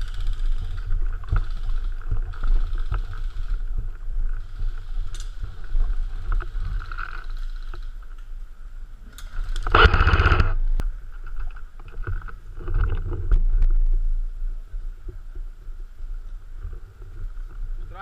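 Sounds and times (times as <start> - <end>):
handling noise on microphone: 9.3 - 14.3.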